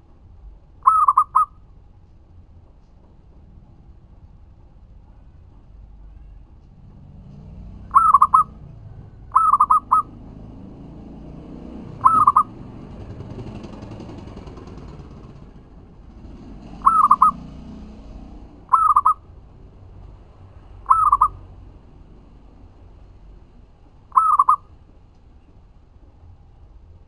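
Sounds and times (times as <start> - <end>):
dove cooing: 0.8 - 1.5, 7.8 - 10.5, 11.8 - 14.1, 16.8 - 17.8, 18.6 - 19.2, 20.8 - 21.4, 24.1 - 24.6.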